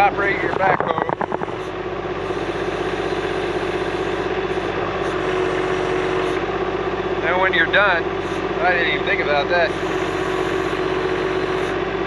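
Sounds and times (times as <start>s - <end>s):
steady whine: 0.0s - 5.3s
tractor diesel engine running: 0.0s - 12.0s.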